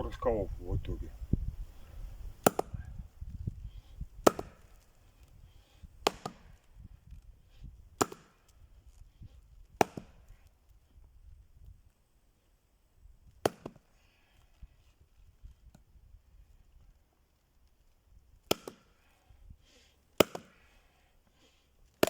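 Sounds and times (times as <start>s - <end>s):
axe splitting firewood: 2.4s - 2.8s, 4.1s - 5.4s, 6.0s - 6.7s, 7.9s - 8.6s, 9.6s - 10.4s, 13.4s - 13.9s, 18.4s - 19.1s, 20.1s - 20.9s.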